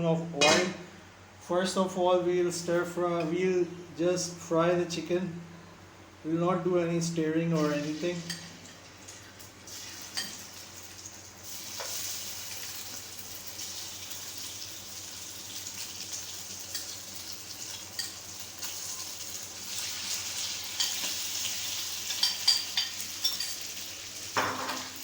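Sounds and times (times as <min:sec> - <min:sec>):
chicken sizzling in oil: 0:07.6 - 0:25.0.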